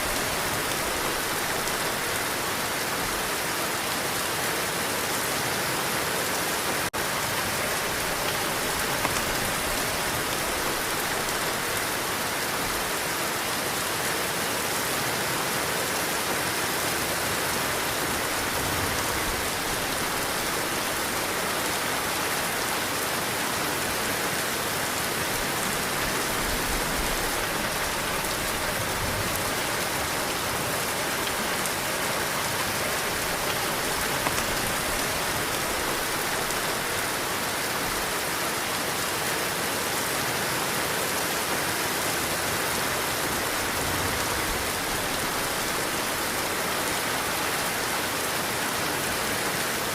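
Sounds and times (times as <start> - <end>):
heavy rain: 0.0 - 49.9
wind gusts: 39.5 - 49.9.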